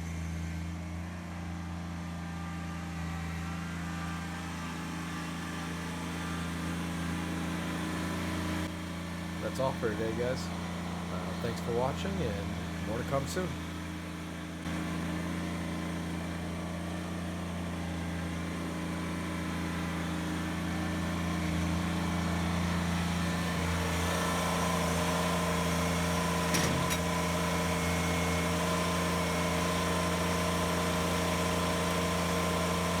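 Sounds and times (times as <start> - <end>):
tractor diesel engine idling: 6.0 - 33.0.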